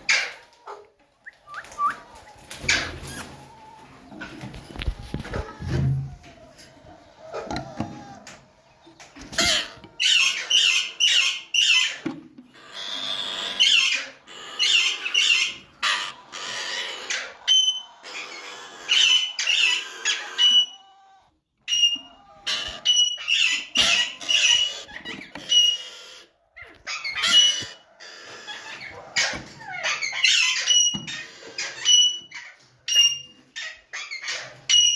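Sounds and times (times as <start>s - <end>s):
parakeets squawking: 9.2s - 12.0s, 12.6s - 21.1s, 21.7s - 34.9s.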